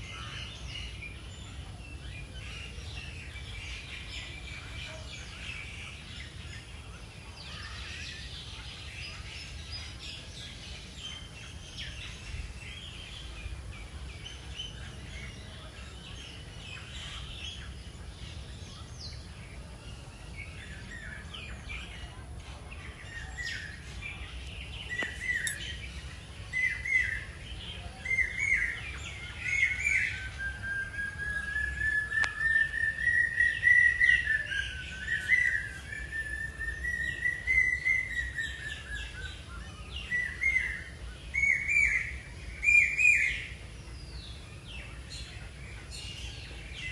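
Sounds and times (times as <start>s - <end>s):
birds chirping: 11.2s - 43.4s.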